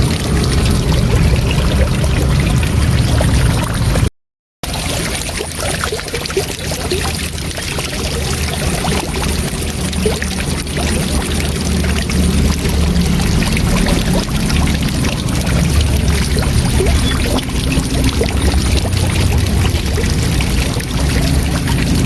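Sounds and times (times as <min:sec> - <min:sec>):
deep low rumble: 0:00.0 - 0:04.1, 0:08.8 - 0:22.0
waterfall rushing: 0:07.7 - 0:22.0.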